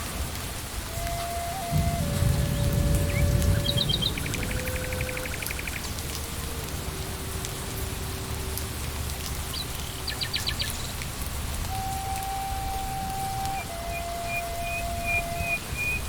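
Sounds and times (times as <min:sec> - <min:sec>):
rain falling on leaves: 0:00.0 - 0:16.0
soft held music notes: 0:00.0 - 0:16.0
faint drips: 0:00.3 - 0:16.0
bird trill: 0:01.7 - 0:05.9, 0:11.7 - 0:16.0.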